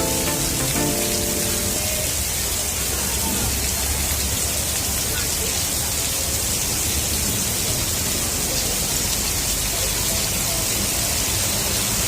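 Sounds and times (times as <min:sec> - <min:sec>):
heavy rain hiss: 0:00.0 - 0:03.9.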